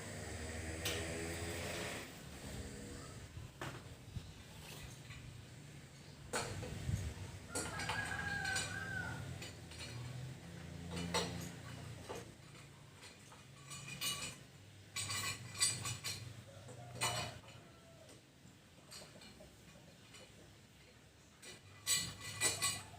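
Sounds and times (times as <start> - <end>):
clinks and knocks of handling: 4.6 - 18.2, 18.8 - 22.9
rooster crowing: 7.5 - 9.4.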